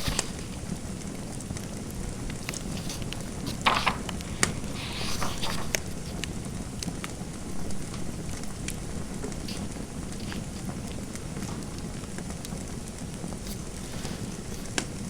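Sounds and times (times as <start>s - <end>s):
fire crackling and popping: 5.4s - 15.0s
low fire rumble: 5.7s - 15.0s.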